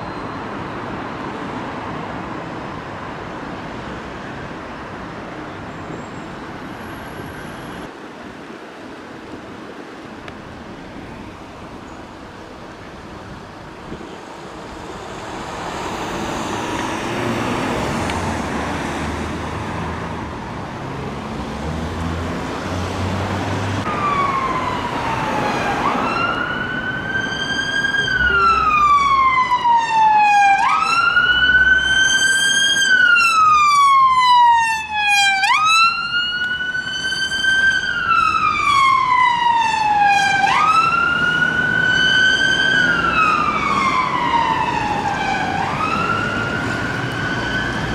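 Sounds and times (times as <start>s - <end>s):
road traffic noise: 0.0s - 47.9s
emergency vehicle siren wailing: 23.8s - 47.9s.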